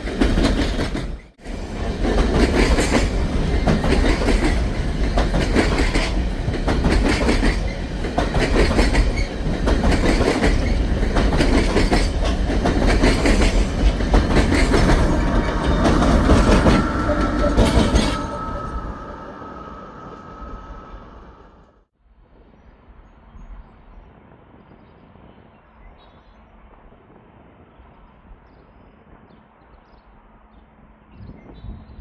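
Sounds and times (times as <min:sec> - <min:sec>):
train wheels clacking over rail joints: 0:00.0 - 0:18.4
train rumble: 0:00.0 - 0:32.0.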